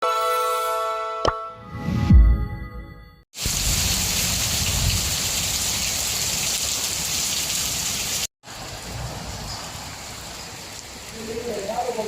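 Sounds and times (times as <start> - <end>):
heavy rain falling: 3.4 - 12.0.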